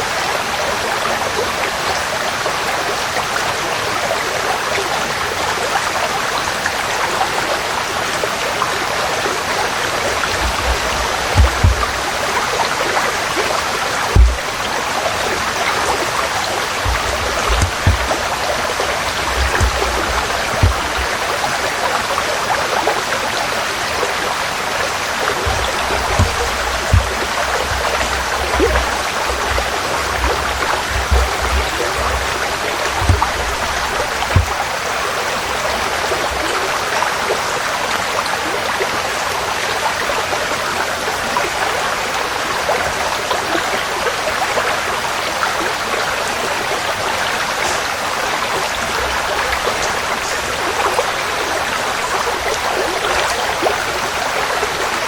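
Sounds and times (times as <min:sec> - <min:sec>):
stream flowing: 0:00.0 - 0:55.0
short low thuds: 0:10.2 - 0:12.3, 0:14.2 - 0:14.7, 0:16.8 - 0:21.2, 0:25.4 - 0:35.2.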